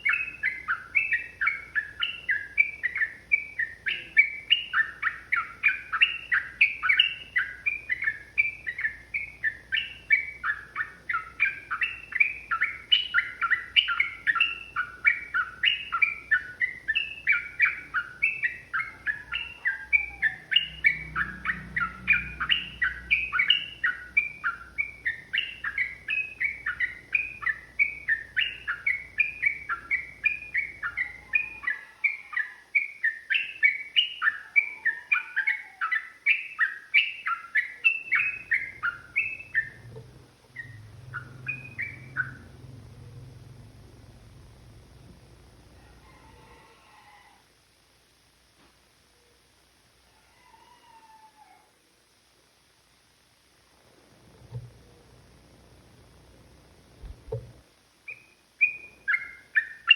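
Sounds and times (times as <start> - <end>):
bird singing rapid chattering notes: 0.0 - 44.1, 58.1 - 59.9.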